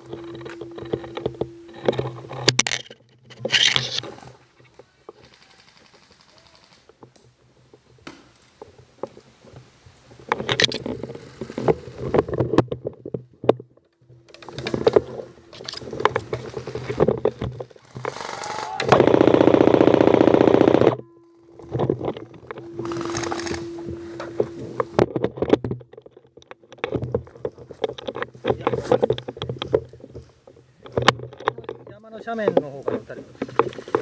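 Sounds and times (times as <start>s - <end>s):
airsoft gun full-auto burst: 18.1s - 21.0s.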